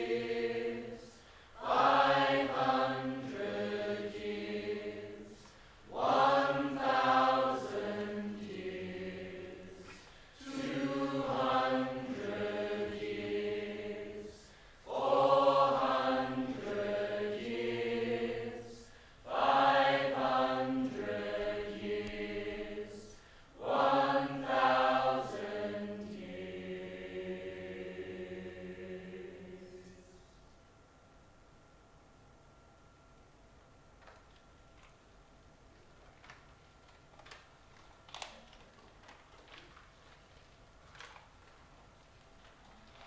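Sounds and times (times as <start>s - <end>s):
choir singing held chords: 0.0s - 30.4s.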